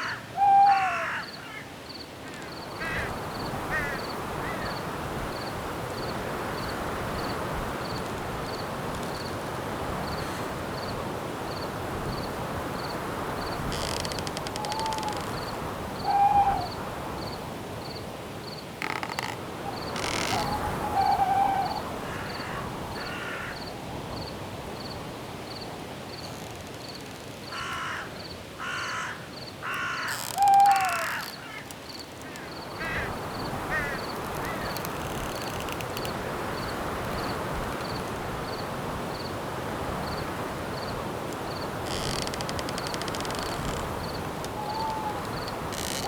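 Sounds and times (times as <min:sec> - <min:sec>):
crow cawing: 0:00.0 - 0:03.1, 0:03.7 - 0:04.8, 0:20.2 - 0:23.6, 0:27.5 - 0:34.8
crickets chirping: 0:00.0 - 0:46.0
wind in trees: 0:00.0 - 0:46.0.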